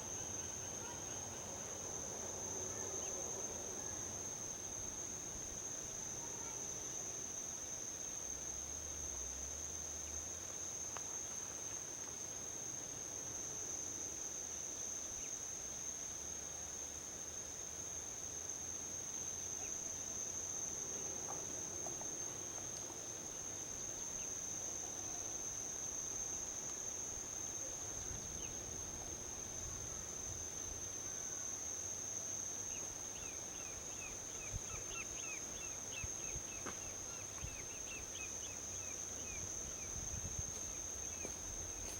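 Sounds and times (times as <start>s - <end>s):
insects trilling: 0.0s - 8.3s, 18.0s - 41.9s.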